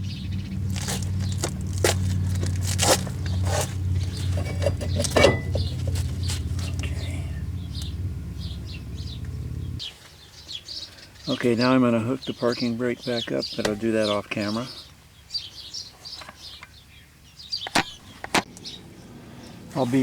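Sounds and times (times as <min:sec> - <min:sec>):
power tool motor running: 0:00.0 - 0:09.8.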